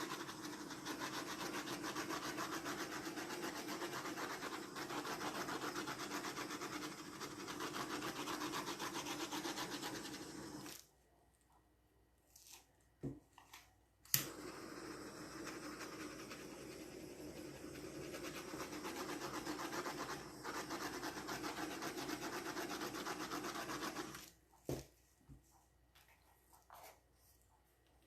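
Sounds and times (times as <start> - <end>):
torch flame hissing: 0.0 - 10.7, 14.2 - 24.2.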